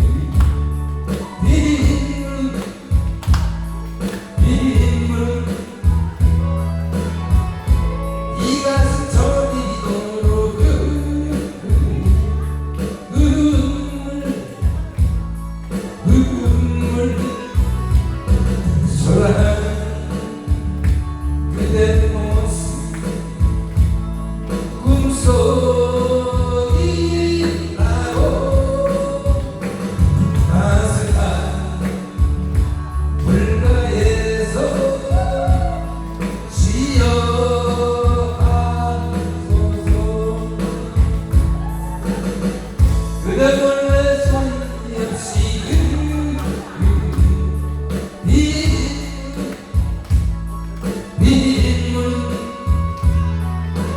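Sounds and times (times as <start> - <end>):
backing music with bass: 0.0 - 53.9
person singing: 0.0 - 53.9.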